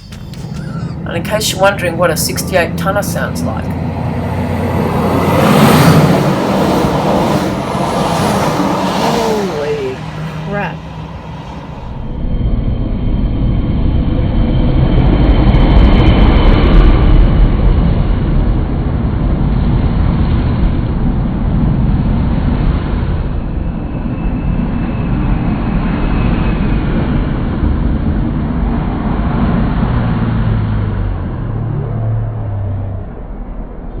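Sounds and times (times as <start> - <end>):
heavy truck rumbling past: 0.0 - 12.3, 28.4 - 34.0.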